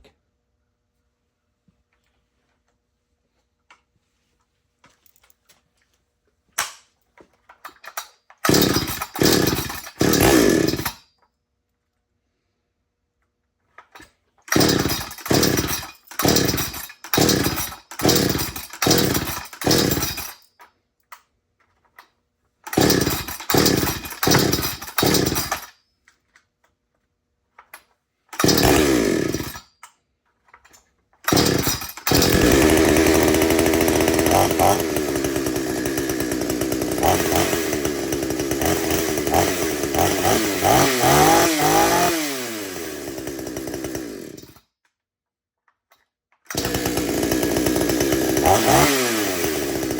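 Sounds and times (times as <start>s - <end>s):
chainsaw pull cord pulls: 6.6s - 11.1s, 13.7s - 26.5s, 27.6s - 44.6s, 45.9s - 49.9s
chainsaw engine running: 7.8s - 11.0s, 14.5s - 20.4s, 22.7s - 25.7s, 28.4s - 29.6s, 31.3s - 44.6s, 46.5s - 49.9s.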